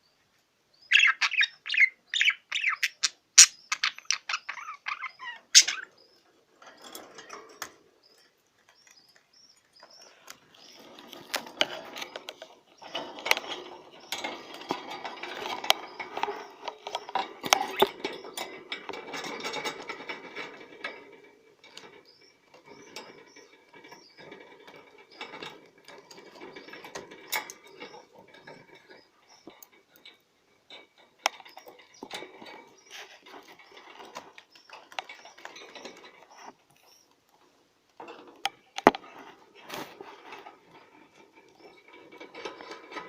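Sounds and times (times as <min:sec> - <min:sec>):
budgerigar warbling: 0:00.9 - 0:06.0.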